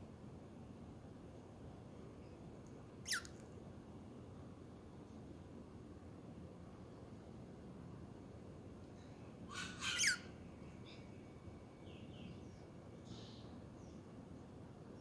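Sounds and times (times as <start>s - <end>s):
budgerigar chirping: 3.1s - 3.3s, 9.5s - 10.3s.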